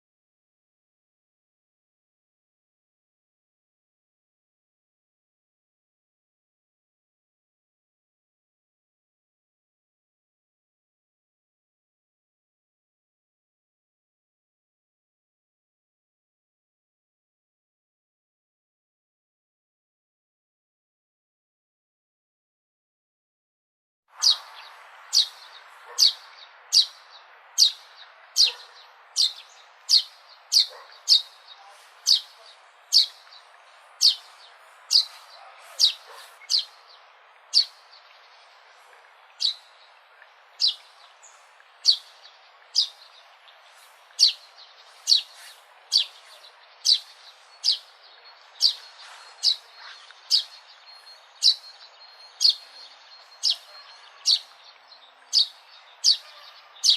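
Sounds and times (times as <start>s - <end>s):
faint background hiss: 24.2s - 56.9s
sparrow chirping: 24.2s - 56.9s.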